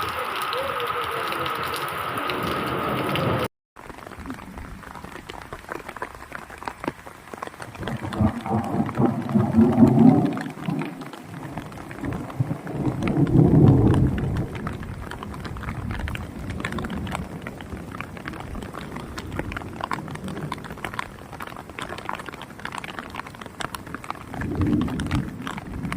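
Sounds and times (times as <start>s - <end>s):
rain and hail falling: 0.0s - 25.9s.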